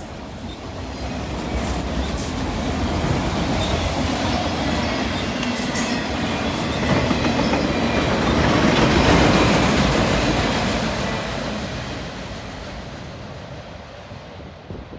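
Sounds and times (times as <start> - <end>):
train wheels clattering over rails: 0.2 - 14.9.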